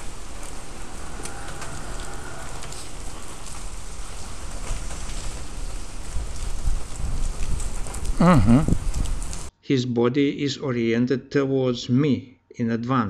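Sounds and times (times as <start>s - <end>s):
rain on wet pavement: 0.0s - 9.5s
raindrops ticking close by: 0.0s - 9.5s.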